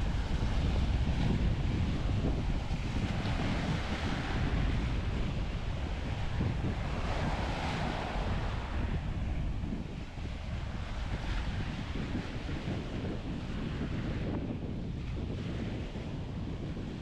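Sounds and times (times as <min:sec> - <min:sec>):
wind buffeting microphone: 0:00.0 - 0:17.0
small surf washing onto sand: 0:00.1 - 0:09.5.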